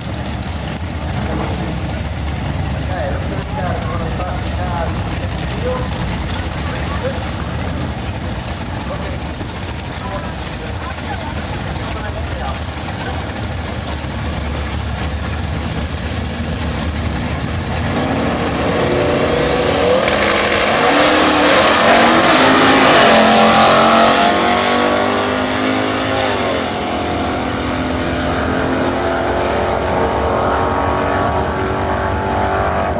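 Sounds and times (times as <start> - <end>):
drag car accelerating: 0.0 - 32.9
high turbo whistle: 18.6 - 23.9.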